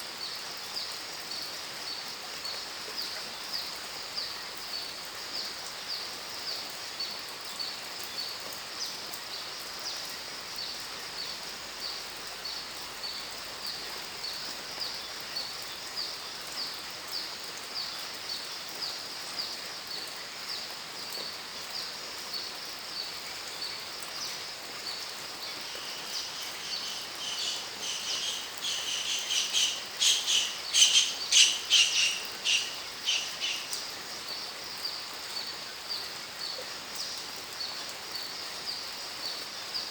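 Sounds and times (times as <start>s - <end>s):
background hiss: 0.0s - 39.9s
bird calls: 25.5s - 33.8s.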